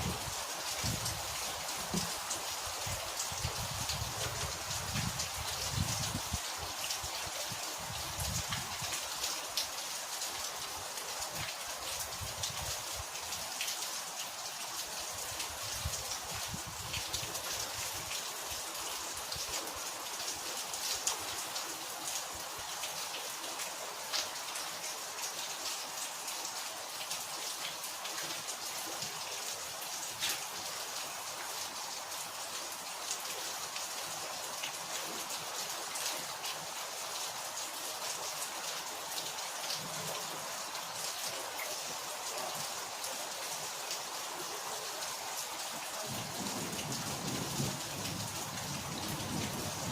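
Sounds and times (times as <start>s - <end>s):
rain on hard surface: 0.0s - 49.9s.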